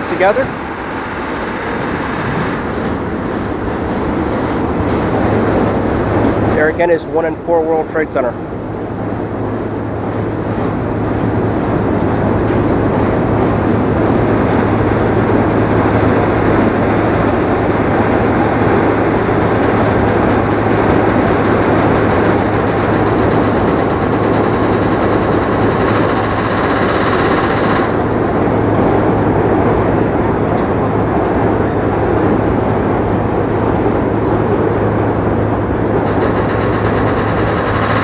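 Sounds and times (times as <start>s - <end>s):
subway train running: 0.0s - 38.0s.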